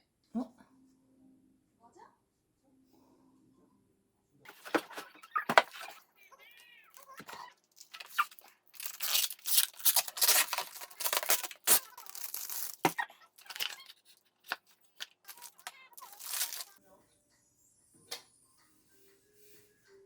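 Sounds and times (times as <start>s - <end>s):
packaging torn and crinkled: 7.0s - 16.8s.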